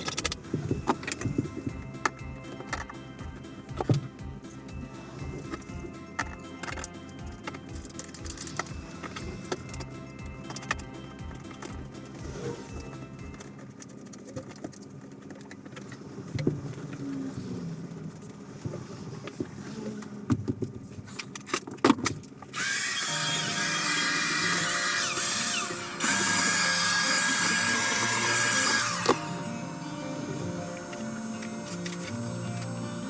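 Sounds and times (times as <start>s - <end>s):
background music: 0.0s - 13.8s, 22.6s - 33.0s
power tool running: 22.5s - 33.0s.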